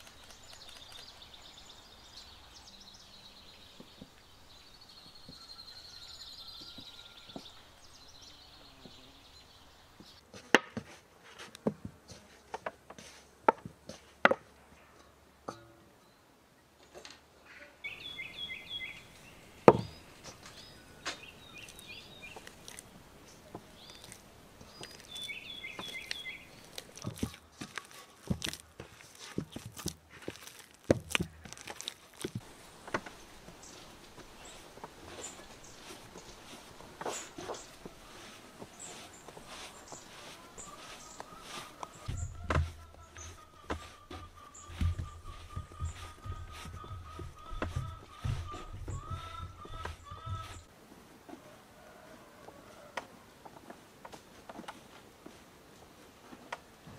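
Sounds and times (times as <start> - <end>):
birds singing: 0.0 - 10.2, 17.4 - 29.7, 31.5 - 50.7
sharp knocks and taps: 42.0 - 50.7.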